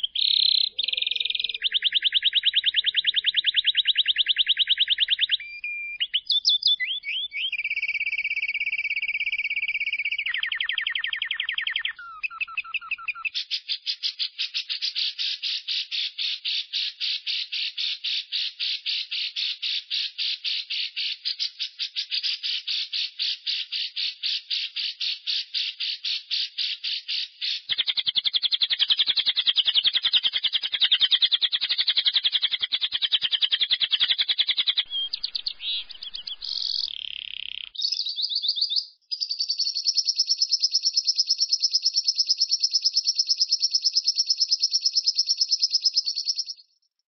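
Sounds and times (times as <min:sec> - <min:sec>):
buzzy bird trill: 0:00.0 - 0:13.4, 0:34.2 - 0:46.6
high bird whistle: 0:00.0 - 0:13.5, 0:32.5 - 0:46.6
lovebird chattering: 0:00.0 - 0:46.6.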